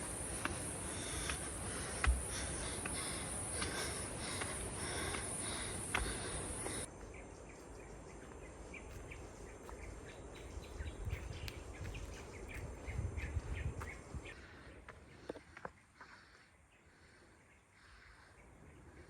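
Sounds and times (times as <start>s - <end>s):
steady high hiss: 0.0s - 7.0s
wind rumbling on microphone: 0.0s - 15.3s
birds chirping: 0.0s - 19.0s.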